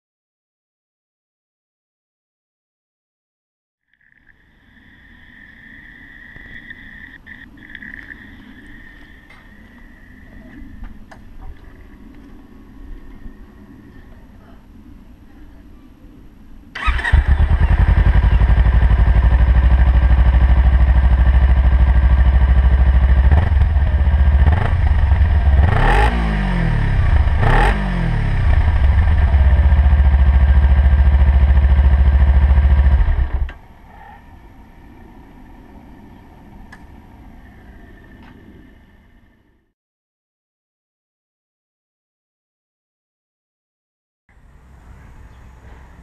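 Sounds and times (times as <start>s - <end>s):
motorcycle engine idling: 16.8s - 33.7s.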